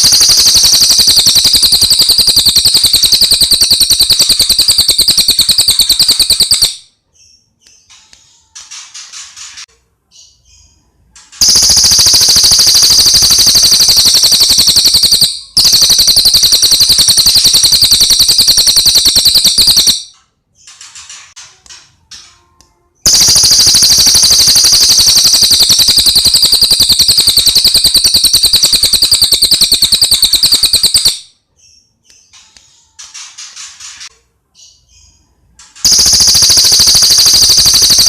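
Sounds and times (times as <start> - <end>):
bird high-pitched rapid trills: 0.0 - 6.9, 11.4 - 20.1, 23.1 - 31.3, 35.8 - 38.0.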